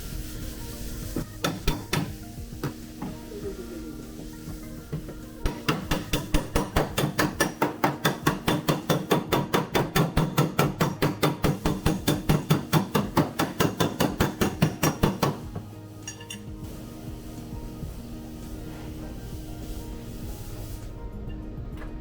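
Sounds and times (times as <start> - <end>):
hammer blows on sheet steel: 1.2 - 3.2, 5.0 - 16.4.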